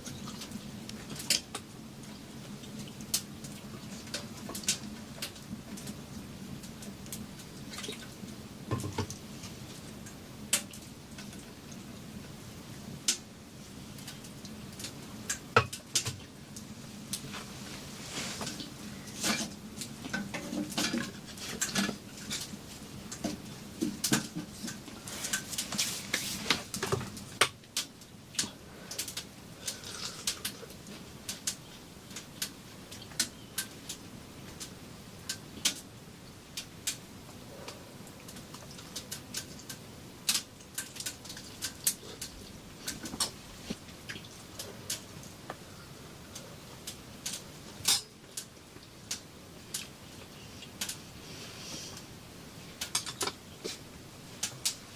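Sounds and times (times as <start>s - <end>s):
rustling: 17.2s - 19.5s.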